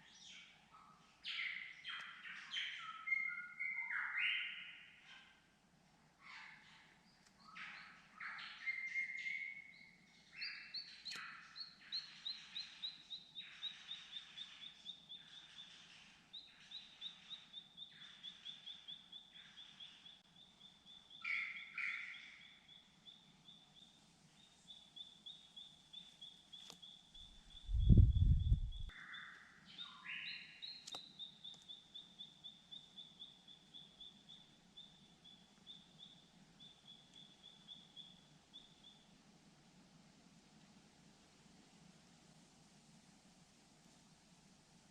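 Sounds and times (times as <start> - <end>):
loud low rumble: 27.6 - 28.9.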